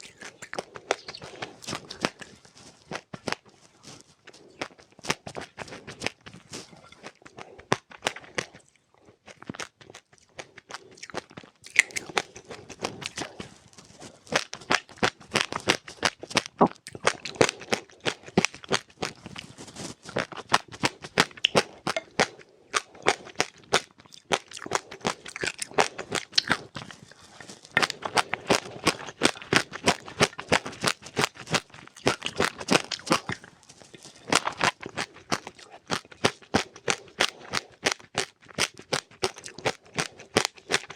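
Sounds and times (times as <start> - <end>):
seeds being chewed: 0.0 - 40.9.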